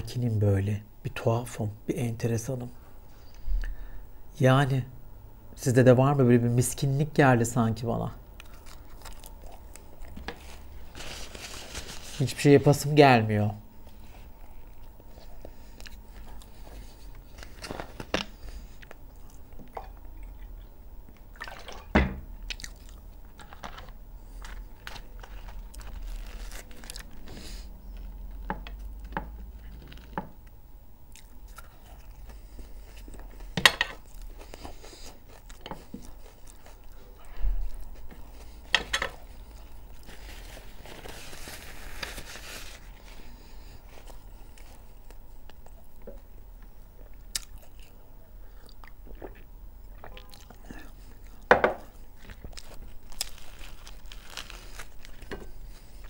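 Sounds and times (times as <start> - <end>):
chewing and biting food: 8.4 - 10.7, 22.4 - 27.3, 27.9 - 40.1, 46.9 - 56.0.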